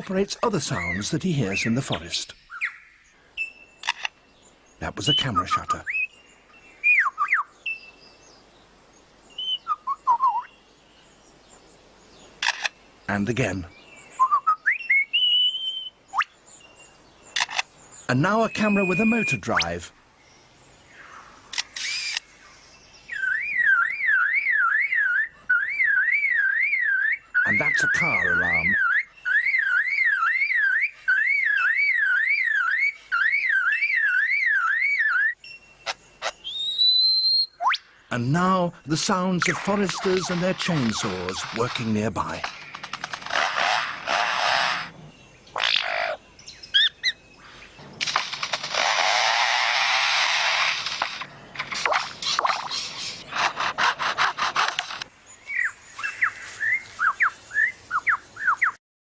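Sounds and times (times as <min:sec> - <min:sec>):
lyrebird mimicking car alarm: 0:18.2 - 0:19.8, 0:23.1 - 0:37.8
bird mimicking a chainsaw: 0:21.6 - 0:22.2, 0:39.6 - 0:44.9, 0:48.0 - 0:55.1.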